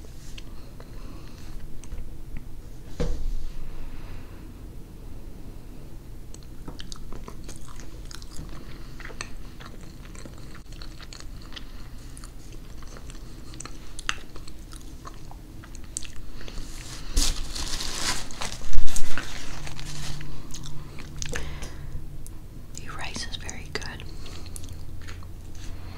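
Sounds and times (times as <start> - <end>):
close chewing with wet smacks: 6.3 - 16.6, 20.2 - 21.6, 22.7 - 25.9.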